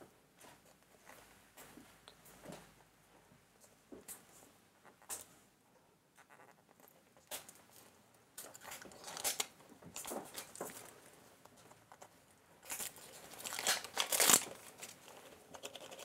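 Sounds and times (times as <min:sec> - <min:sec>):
wrapper tearing and crinkling: 0:08.5 - 0:10.6, 0:12.6 - 0:15.0.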